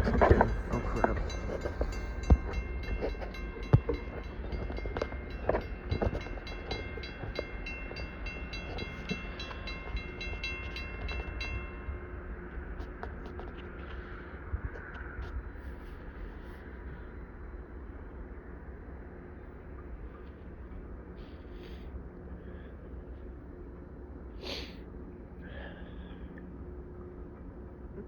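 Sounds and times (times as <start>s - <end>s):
knocks and clanks from train wheels: 0.0s - 12.1s
high ringing bell: 0.0s - 12.4s
train rumbling past: 0.0s - 24.3s.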